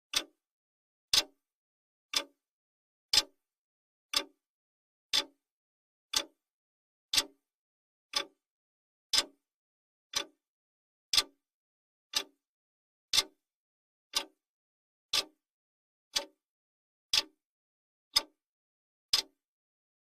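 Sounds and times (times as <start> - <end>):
clock ticking: 0.1 - 0.3, 4.1 - 4.3, 6.1 - 6.3, 8.1 - 8.4, 14.1 - 14.3, 19.1 - 19.4.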